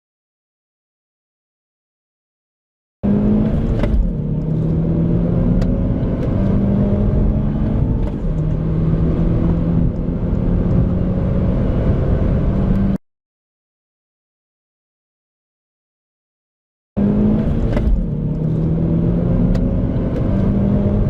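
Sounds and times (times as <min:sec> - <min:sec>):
car engine accelerating hard: 0:03.0 - 0:13.0, 0:17.0 - 0:21.0.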